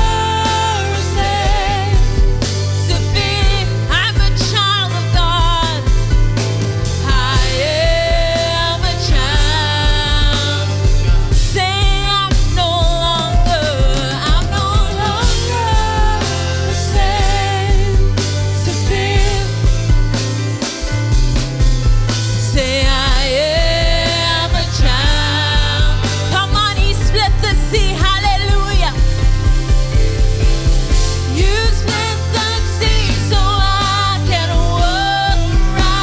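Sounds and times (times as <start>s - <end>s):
singer holding long notes: 0.0s - 20.2s, 22.4s - 36.0s
band playing worship music: 0.0s - 36.0s.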